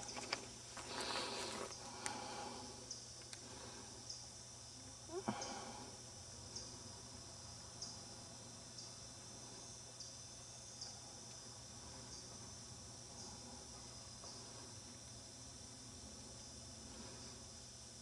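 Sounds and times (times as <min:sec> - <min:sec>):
insects buzzing: 0:00.0 - 0:18.0.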